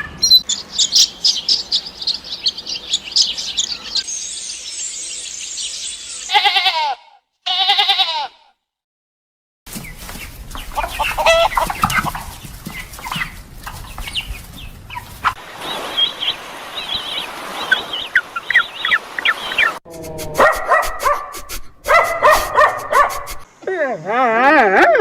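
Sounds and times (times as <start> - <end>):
chickens clucking: 9.7 - 23.5.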